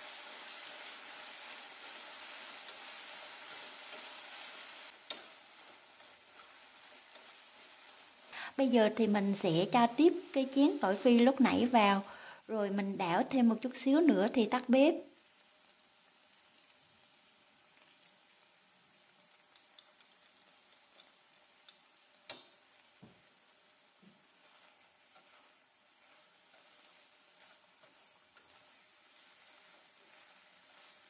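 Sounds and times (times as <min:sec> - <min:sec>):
utensils clicking on a pan: 0:00.0 - 0:11.7, 0:19.1 - 0:22.8, 0:24.1 - 0:31.0
fish sizzling in a pan: 0:00.0 - 0:31.0.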